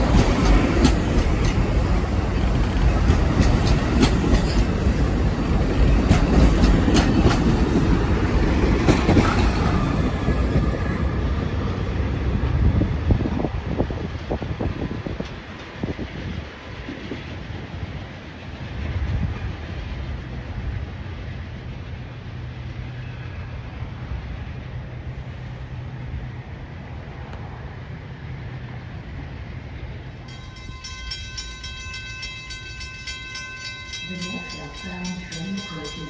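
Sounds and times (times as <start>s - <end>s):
diesel train rumbling past: 0.0s - 36.0s.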